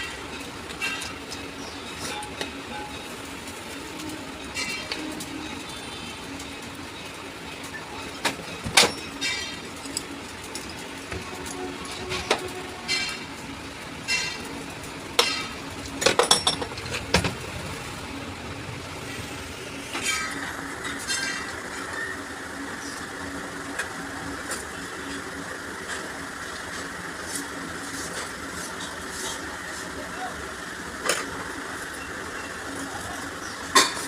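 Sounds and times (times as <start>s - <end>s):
metal tools clinking: 15.2s - 17.0s.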